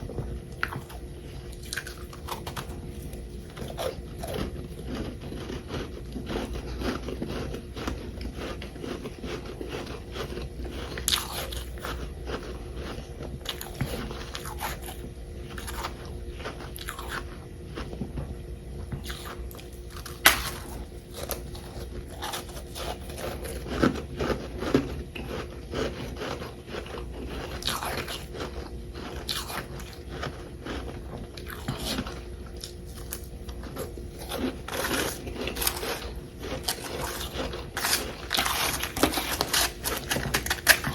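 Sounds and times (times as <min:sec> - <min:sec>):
chewing crunchy frost: 0:00.0 - 0:40.9.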